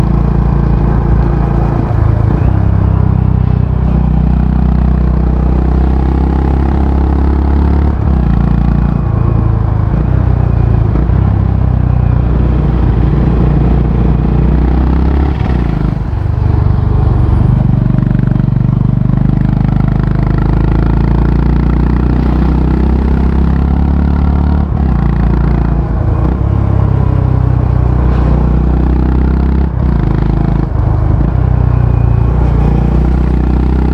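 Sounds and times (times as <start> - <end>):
motorcycle engine revving through gears: 0.0 - 33.9.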